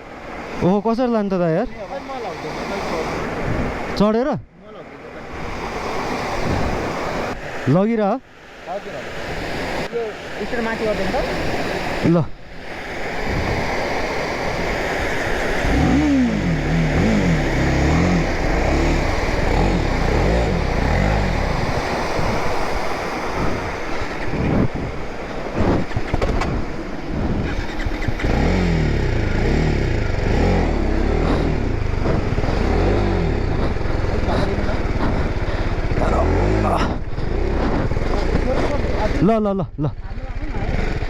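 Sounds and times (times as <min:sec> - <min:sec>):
motorcycle engine revving: 0:13.6 - 0:39.2, 0:39.9 - 0:41.0
sharp knocks: 0:25.6 - 0:26.6.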